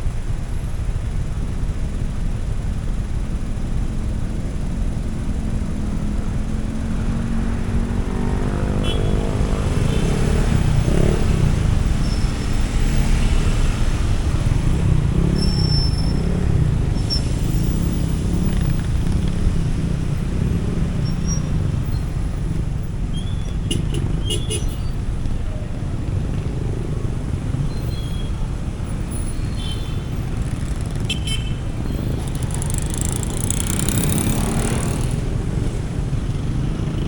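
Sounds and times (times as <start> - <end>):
motorcycle engine drone: 0.0 - 37.0
wind rumble while riding: 9.2 - 37.0.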